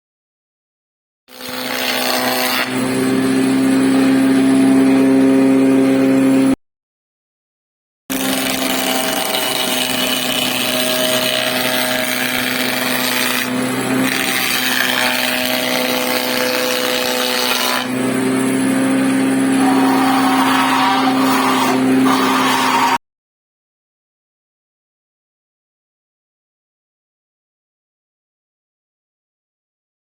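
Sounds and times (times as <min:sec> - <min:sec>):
power tool cutting wood: 0:01.3 - 0:06.6, 0:08.1 - 0:23.0.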